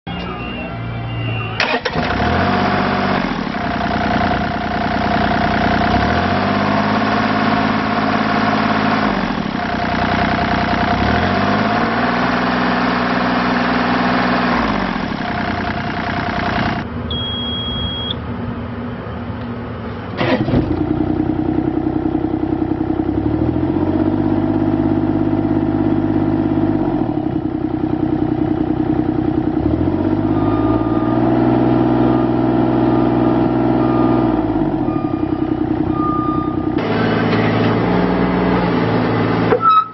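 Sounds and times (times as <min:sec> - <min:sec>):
short beep: 0:00.1 - 0:02.1, 0:17.1 - 0:18.2, 0:30.3 - 0:31.4, 0:33.8 - 0:36.8, 0:39.5 - 0:39.9
excavator diesel engine running: 0:00.1 - 0:39.9.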